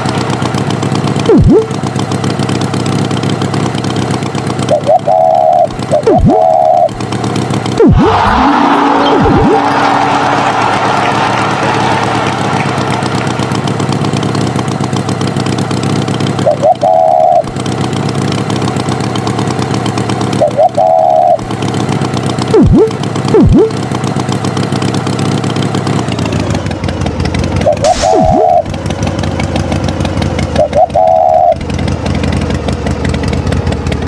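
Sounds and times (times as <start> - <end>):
cartoon tractor engine: 0.0 - 34.0
falling whistles: 7.8 - 13.8, 27.7 - 28.7
high honk-like tones: 7.8 - 14.4.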